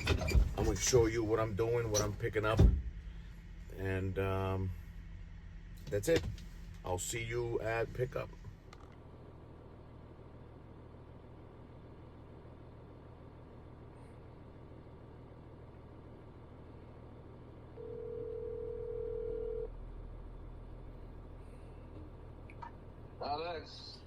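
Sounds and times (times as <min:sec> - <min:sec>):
low hum inside vehicle: 0:00.0 - 0:24.0
phone ringback tone: 0:17.8 - 0:19.7.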